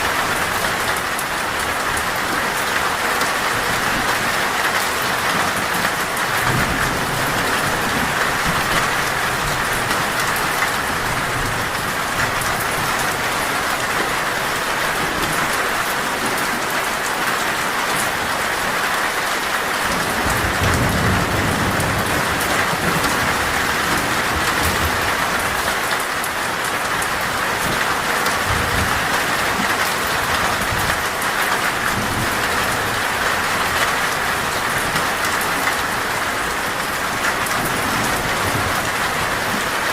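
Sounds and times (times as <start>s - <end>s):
heavy rain on metal roof: 0.0s - 39.9s
thunder rumbling: 19.9s - 25.6s.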